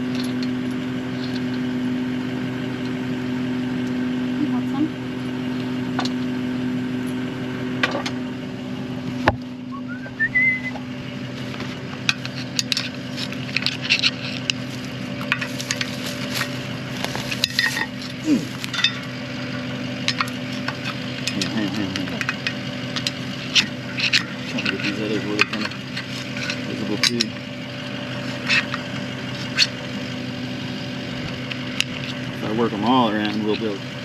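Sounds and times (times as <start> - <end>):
engine idling hum: 0.0 - 34.0
metal bolts clinking: 18.6 - 19.1.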